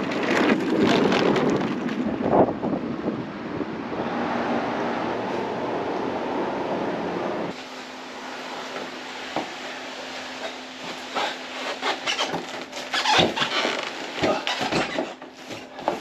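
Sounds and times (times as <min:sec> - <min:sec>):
handling knocks and scrapes: 0:08.6 - 0:16.0.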